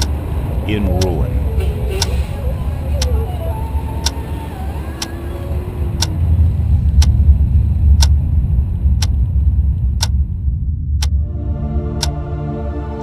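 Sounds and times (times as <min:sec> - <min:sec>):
deep rumble: 0:00.0 - 0:13.0
clock ticking: 0:00.9 - 0:01.2.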